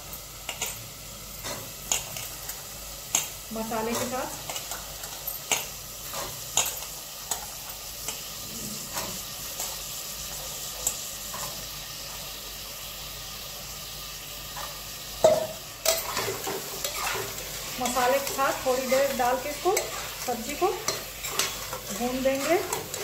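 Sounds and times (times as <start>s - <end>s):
vegetables sizzling in a pot: 0.0s - 23.0s
spoon knocking on a cooker: 15.2s - 15.6s
steel spoon scraping a pot: 15.8s - 23.0s.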